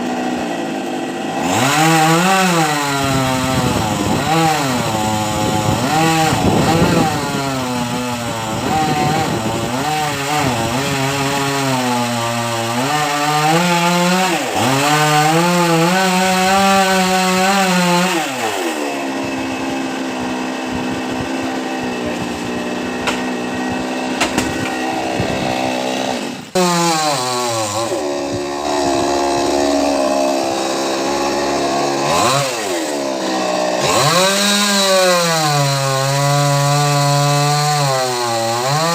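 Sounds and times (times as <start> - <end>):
chainsaw cutting tree: 0.0 - 38.9.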